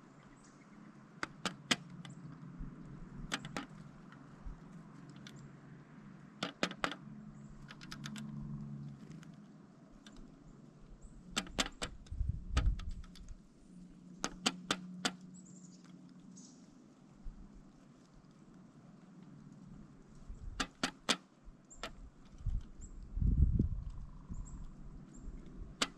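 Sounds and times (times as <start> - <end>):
woodpecker pecking knocks: 1.2 - 2.6, 3.2 - 4.6, 6.4 - 8.2, 11.1 - 13.2, 14.2 - 15.4, 20.4 - 22.8, 25.4 - 25.9.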